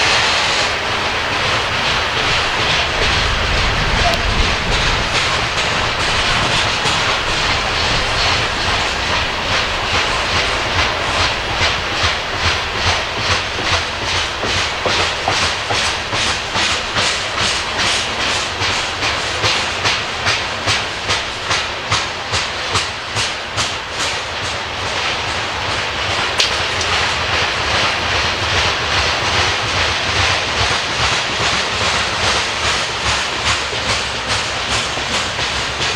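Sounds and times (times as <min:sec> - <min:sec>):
train cars rumbling past: 0:00.0 - 0:35.9
train wheels clicking over rail joints: 0:00.0 - 0:35.9.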